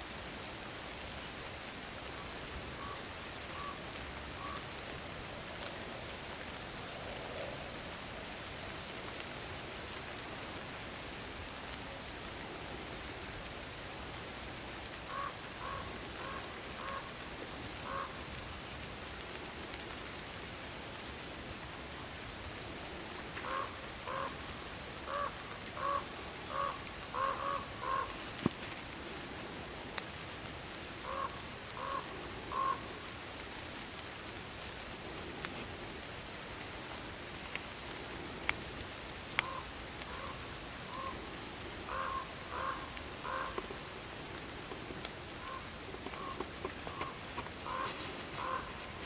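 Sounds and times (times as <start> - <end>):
night forest ambience: 0.0 - 49.0
rain hissing: 0.0 - 49.0
water drips: 32.5 - 49.0
animal calling: 41.9 - 43.9, 44.7 - 49.0.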